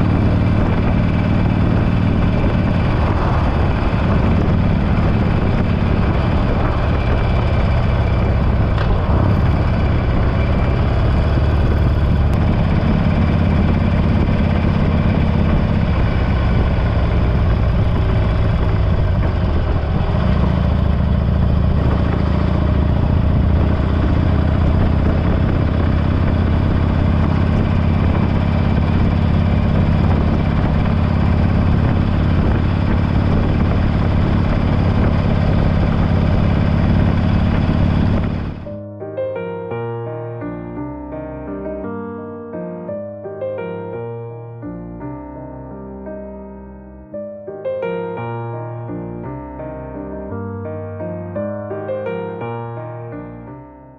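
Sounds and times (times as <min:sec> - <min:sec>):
motorcycle engine running: 0:00.0 - 0:38.8.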